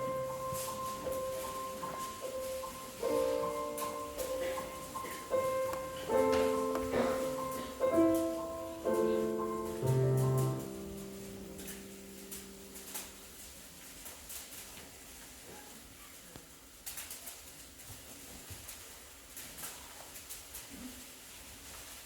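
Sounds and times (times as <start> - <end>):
piano chords: 0.0 - 13.4.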